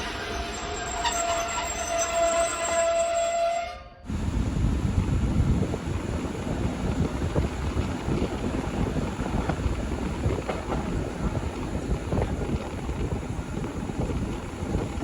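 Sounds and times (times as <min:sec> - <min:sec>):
train rumbling on rails: 0:00.0 - 0:15.0
wind buffeting microphone: 0:04.1 - 0:15.0.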